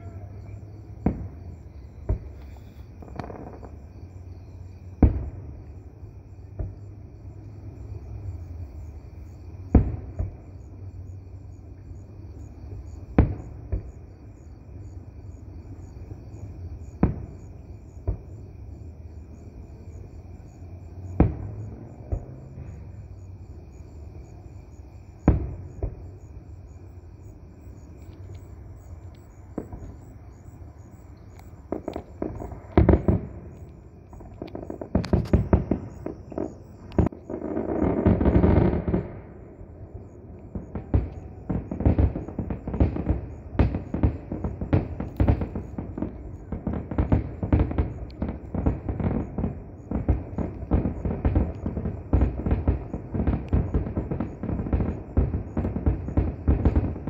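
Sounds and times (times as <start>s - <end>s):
insects chirping: 0.0s - 57.0s
firework shells bursting: 31.2s - 39.2s
firework launch thumps: 34.1s - 37.2s.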